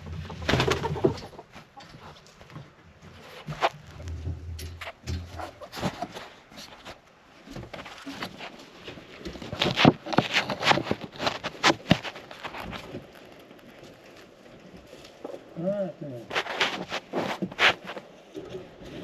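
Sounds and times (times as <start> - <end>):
snow and ice crunching: 7.7 - 19.0.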